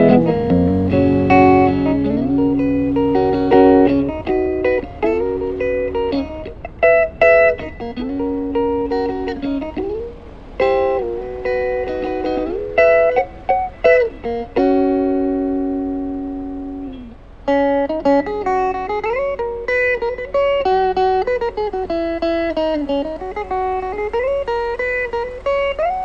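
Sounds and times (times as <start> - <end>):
guitar music: 0.0 - 26.0.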